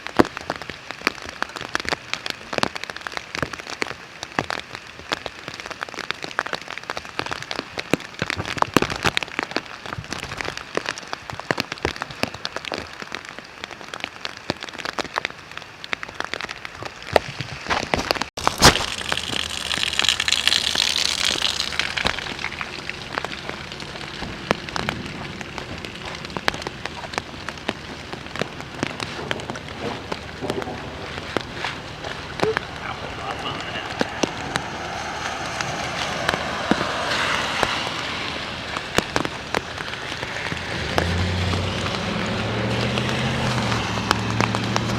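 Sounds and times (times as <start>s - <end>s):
rain hiss: 0.0s - 44.9s
raindrops pattering: 0.0s - 44.9s
thunder crack: 21.2s - 42.8s.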